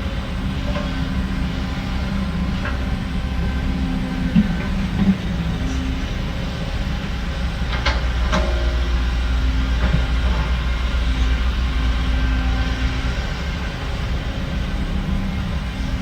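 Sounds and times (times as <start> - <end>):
diesel machinery rumbling: 0.0 - 16.0.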